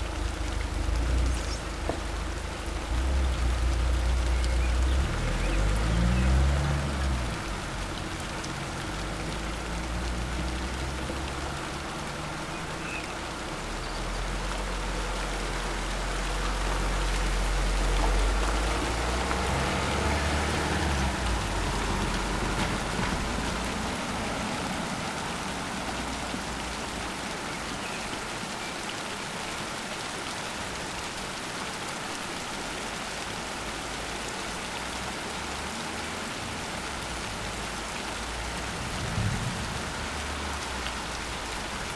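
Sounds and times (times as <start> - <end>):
heavy rain: 0.0 - 41.9
thunder rumbling: 38.2 - 41.9.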